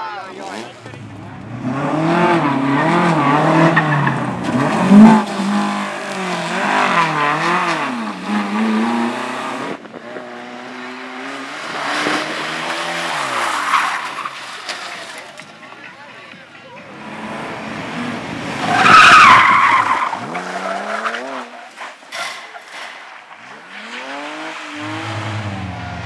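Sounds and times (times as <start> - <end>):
racing car engine revving: 0.4 - 15.3, 16.8 - 21.6, 22.2 - 26.0.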